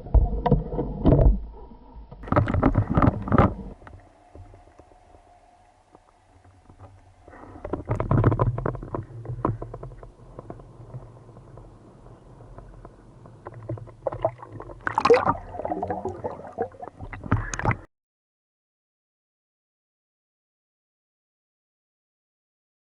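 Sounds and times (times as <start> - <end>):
water sloshing and gurgling: 0.0 - 17.9
knocks and splashes: 2.2 - 4.7, 12.5 - 17.9.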